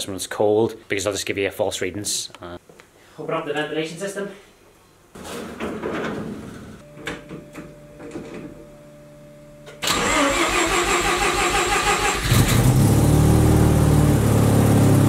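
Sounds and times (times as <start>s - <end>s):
starter motor cranking: 9.8s - 12.8s.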